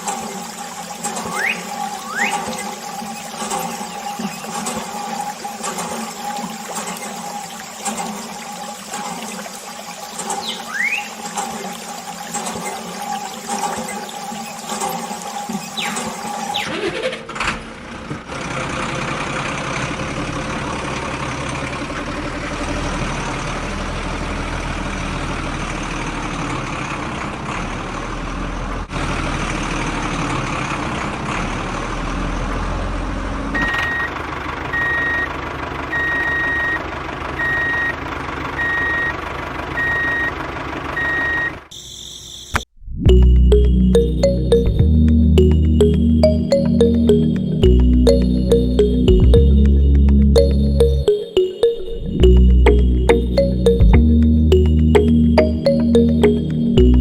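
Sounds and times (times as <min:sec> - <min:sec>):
reversing alarm beeping: 0:01.3 - 0:02.7, 0:33.6 - 0:34.2, 0:34.8 - 0:35.3, 0:37.4 - 0:37.9, 0:38.6 - 0:39.1, 0:39.8 - 0:40.3, 0:41.0 - 0:57.0.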